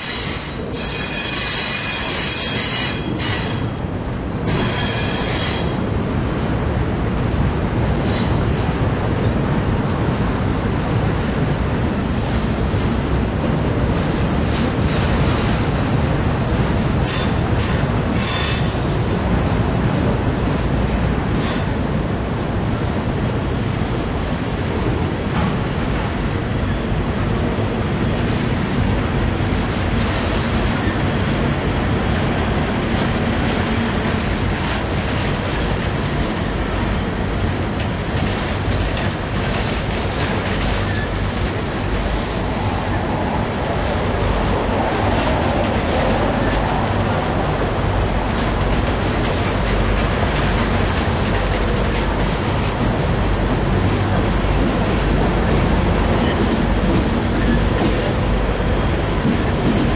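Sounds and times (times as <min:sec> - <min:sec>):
high-pitched wheel squeals: 0:00.0 - 0:03.7, 0:04.5 - 0:05.7
freight train wheels rumbling on rails: 0:00.0 - 0:59.9.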